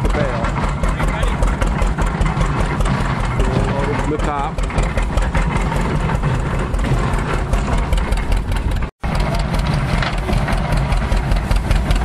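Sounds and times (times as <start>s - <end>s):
tractor engine chugging: 0.0s - 12.0s.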